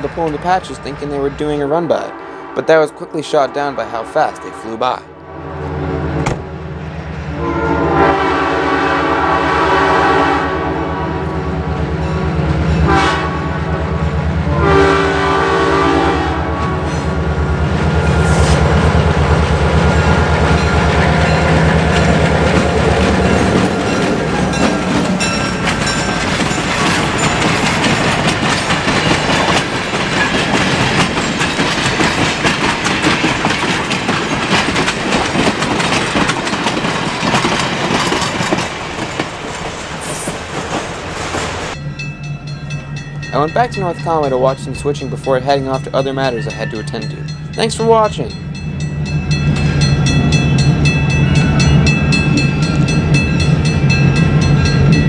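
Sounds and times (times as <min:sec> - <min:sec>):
clickety-clack of train wheels: 0:00.0 - 0:01.2, 0:20.4 - 0:41.8
train horn blasts: 0:02.0 - 0:02.8, 0:07.3 - 0:11.7, 0:12.8 - 0:17.4.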